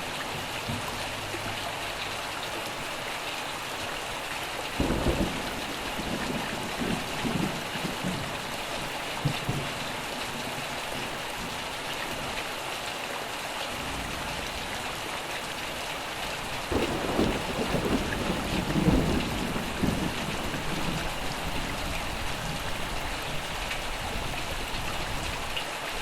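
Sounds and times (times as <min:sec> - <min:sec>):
rain hiss: 0:00.0 - 0:26.0
rolling thunder: 0:04.8 - 0:10.5, 0:16.7 - 0:23.4.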